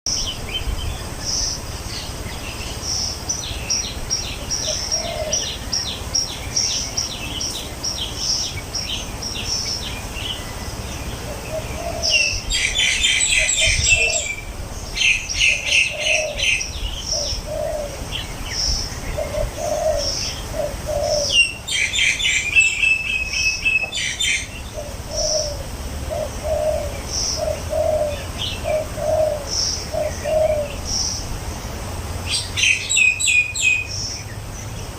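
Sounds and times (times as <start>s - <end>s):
dense birdsong: 0.1s - 34.9s
dove cooing: 4.3s - 6.4s, 11.2s - 31.0s.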